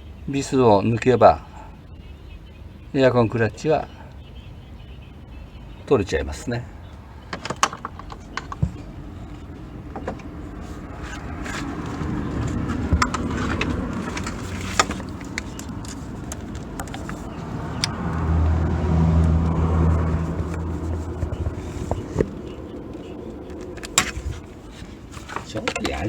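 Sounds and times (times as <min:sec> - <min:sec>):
hand tools clicking and tapping: 0:11.1 - 0:18.0.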